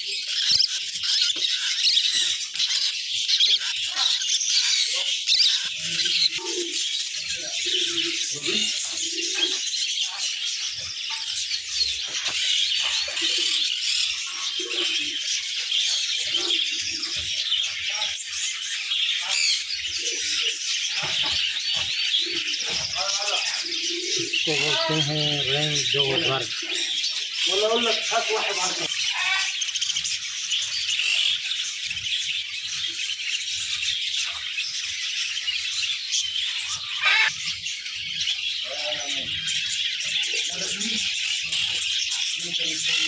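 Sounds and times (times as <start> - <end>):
caged birds chirping: 0.0 - 43.0.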